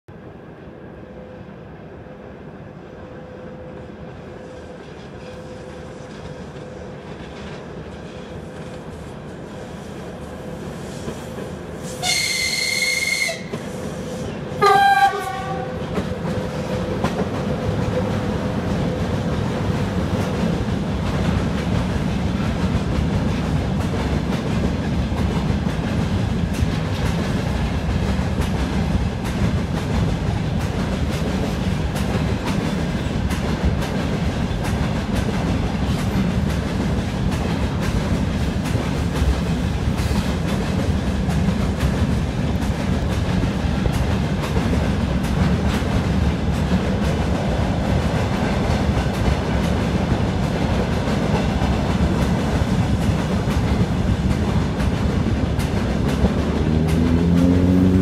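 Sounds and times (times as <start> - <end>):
locomotive rumble: 10.9 - 58.0
train horn blasts: 11.8 - 15.9.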